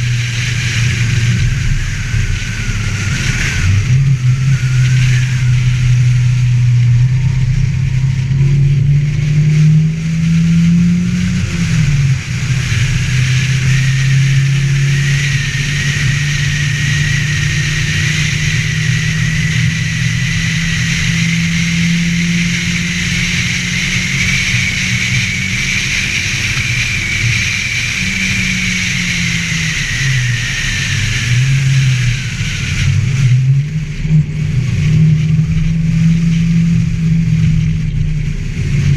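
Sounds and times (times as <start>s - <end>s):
car engine revving under load: 0.0s - 38.9s
high whine: 0.0s - 38.9s.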